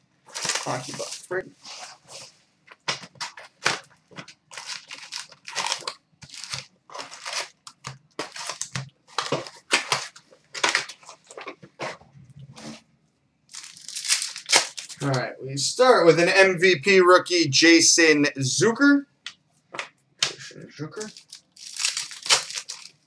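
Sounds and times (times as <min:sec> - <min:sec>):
plastic wrapping crinkling and tearing: 0:00.3 - 0:02.2, 0:02.9 - 0:11.6, 0:13.5 - 0:15.2, 0:21.0 - 0:23.0.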